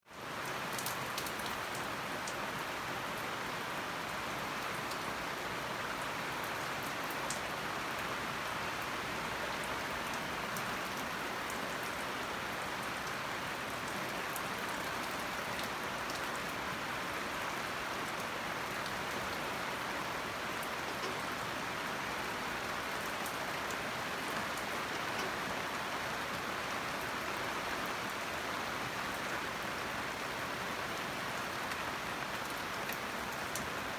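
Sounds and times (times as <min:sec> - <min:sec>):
rain falling: 0:00.1 - 0:33.9
raindrop ticks: 0:22.8 - 0:26.5.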